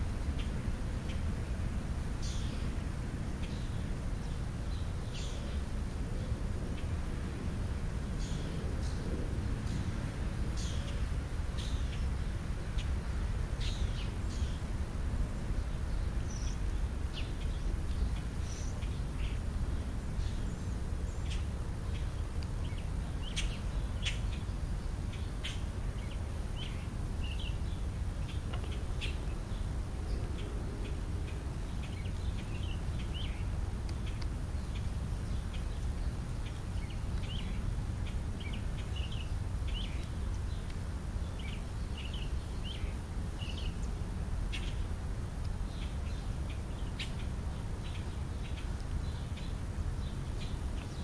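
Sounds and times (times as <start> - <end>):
birds chirping: 2.2 - 2.8, 3.4 - 7.5, 8.1 - 51.0.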